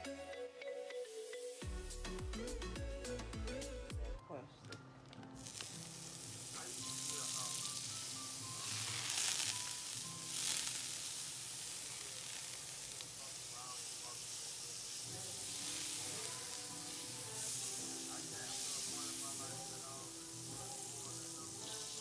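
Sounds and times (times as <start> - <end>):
butter sizzling in a pan: 5.3 - 22.0.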